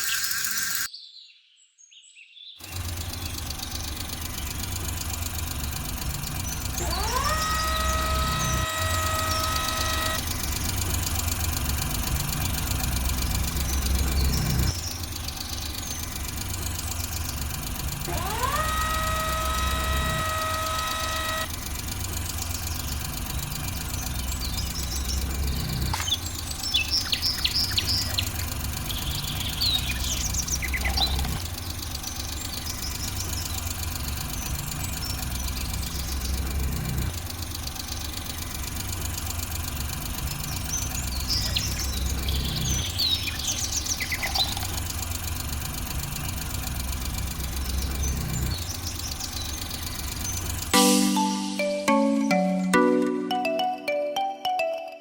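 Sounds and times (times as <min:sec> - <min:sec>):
tractor engine chugging: 0:02.6 - 0:53.6
rising horn blasts: 0:06.8 - 0:10.8, 0:18.1 - 0:21.6, 0:50.8 - 0:54.2.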